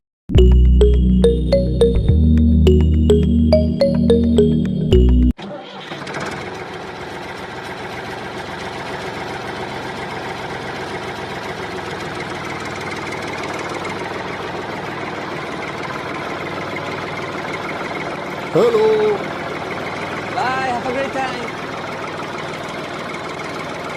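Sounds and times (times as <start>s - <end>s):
short music sting: 0.3s - 5.3s.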